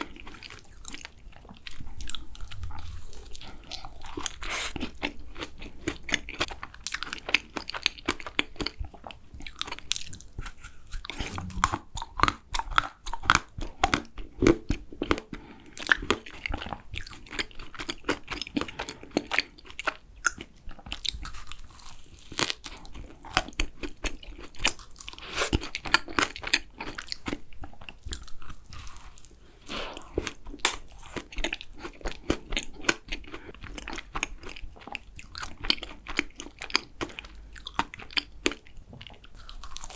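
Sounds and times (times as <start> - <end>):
soft wet chewing: 0.0 - 39.9
crunching of crisp shells: 10.9 - 39.9.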